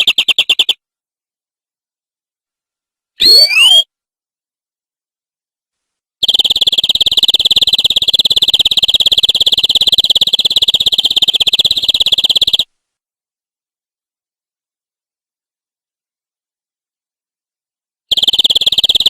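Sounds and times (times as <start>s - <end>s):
canary trilling: 3.2s - 3.9s, 6.2s - 12.7s, 18.1s - 19.0s.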